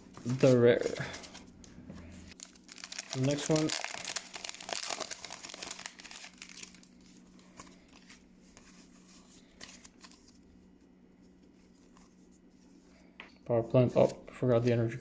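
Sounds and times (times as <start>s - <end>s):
cards rustling and ticking: 0.1s - 10.5s
foil wrapper crinkling and tearing: 2.3s - 8.2s.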